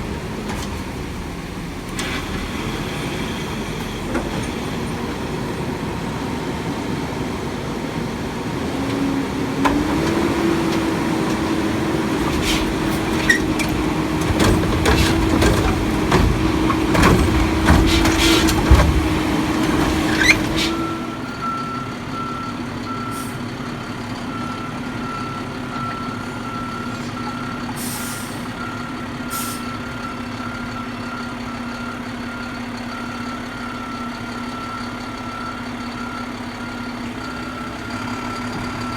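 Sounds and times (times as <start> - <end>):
garbage truck engine running: 0.0 - 38.9
metal clanks and bangs: 12.3 - 20.8.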